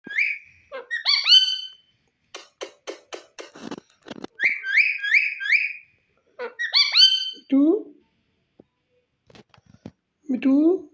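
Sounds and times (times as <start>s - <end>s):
parakeet whistling: 0.0s - 1.8s, 4.4s - 7.5s.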